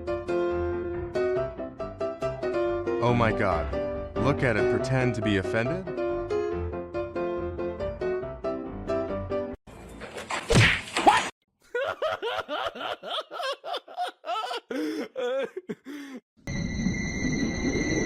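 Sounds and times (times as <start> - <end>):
sharp whack: 10.3 - 11.3.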